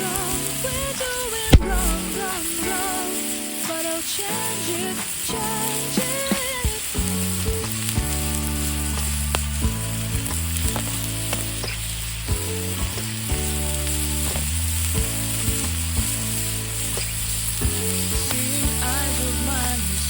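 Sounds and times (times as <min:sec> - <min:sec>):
food sizzling on a griddle: 0:00.0 - 0:20.0
sharp pops: 0:01.5 - 0:02.9.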